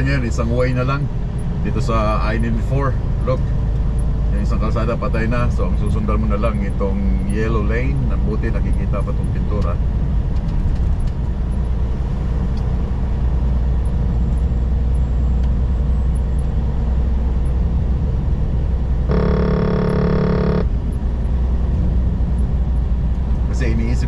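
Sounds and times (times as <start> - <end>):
truck engine and road rumble: 0.0 - 24.0
steady pitched tone: 19.1 - 21.0.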